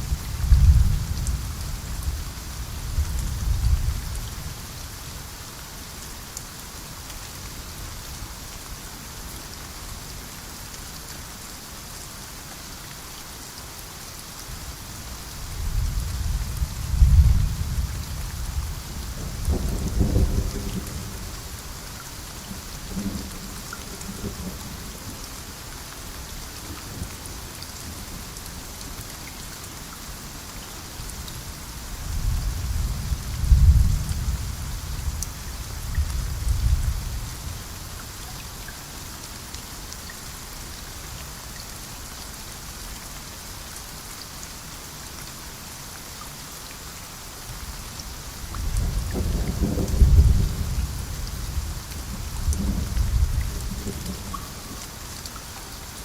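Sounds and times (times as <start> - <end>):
steady rain falling: 0.0 - 56.0
low rolling thunder: 0.1 - 2.2, 15.6 - 21.6, 32.1 - 37.5, 48.6 - 54.6.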